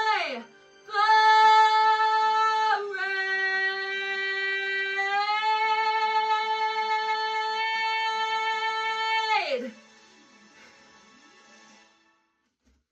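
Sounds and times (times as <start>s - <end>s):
woman singing long notes: 0.0s - 9.7s.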